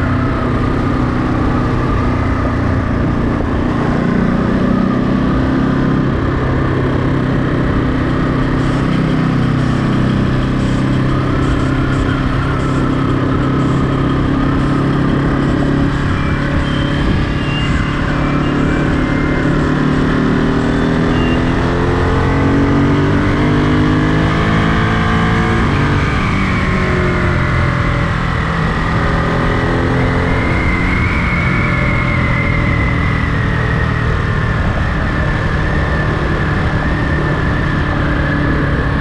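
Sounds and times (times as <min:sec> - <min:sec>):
wind noise on microphone: 0:00.0 - 0:13.4
motorcycle engine accelerating: 0:00.0 - 0:39.0.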